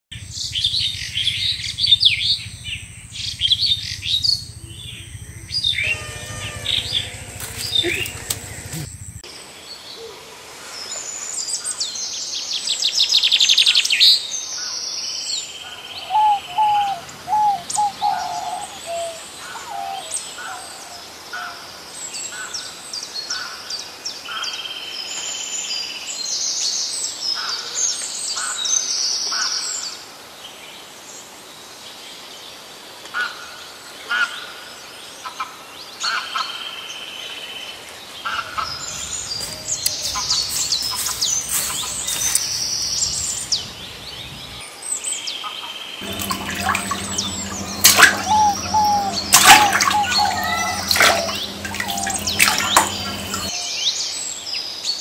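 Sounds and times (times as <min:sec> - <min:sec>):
bird trill: 0:00.3 - 0:08.8, 0:16.0 - 0:20.1, 0:46.0 - 0:53.5
lower whistled bird notes: 0:00.3 - 0:09.0, 0:16.0 - 0:20.1, 0:46.0 - 0:53.5
birds chirping and calling: 0:03.2 - 0:09.0, 0:16.0 - 0:20.1, 0:38.7 - 0:43.5, 0:46.0 - 0:53.5.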